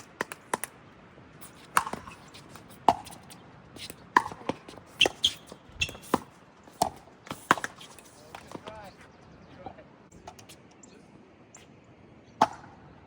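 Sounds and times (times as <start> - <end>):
ball bouncing clicks: 0.0 - 0.8, 1.5 - 8.8
paddles hitting plastic ball: 0.0 - 0.8, 1.4 - 8.8.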